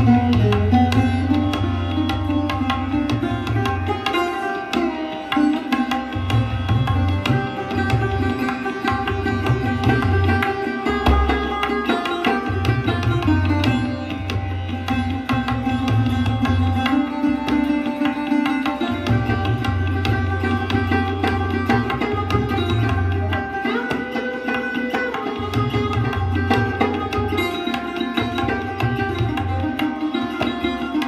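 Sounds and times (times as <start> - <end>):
sarod plucked notes: 0.0 - 31.0.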